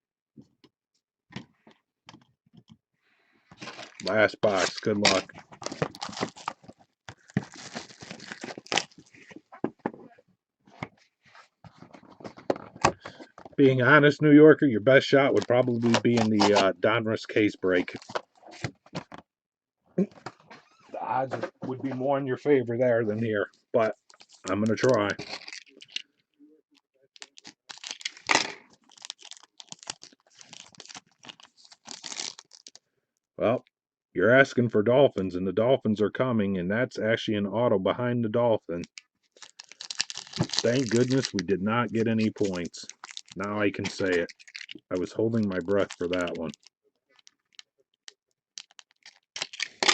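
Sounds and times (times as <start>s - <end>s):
wrapper crinkling: 3.6s - 9.2s, 23.9s - 26.0s, 27.2s - 32.8s, 39.4s - 47.6s, 48.6s - 49.9s
trading cards clicking and rustling: 15.3s - 16.7s, 23.8s - 26.0s, 39.4s - 46.6s.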